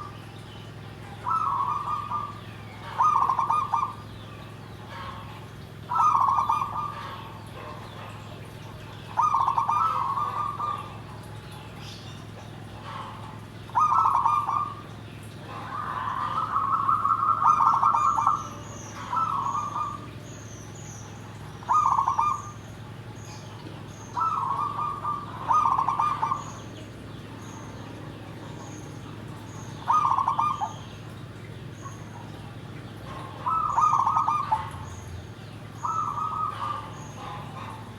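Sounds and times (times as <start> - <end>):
dove cooing: 1.2 - 4.0, 5.9 - 7.0, 9.2 - 11.1, 13.0 - 14.9, 15.5 - 20.2, 21.6 - 22.6, 23.6 - 26.7, 29.8 - 30.9, 33.0 - 35.0, 35.8 - 37.9.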